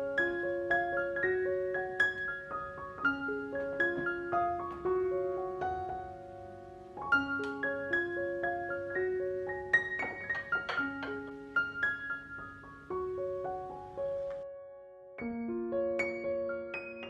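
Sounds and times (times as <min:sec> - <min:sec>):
gentle solo piano melody: 0:00.0 - 0:17.0.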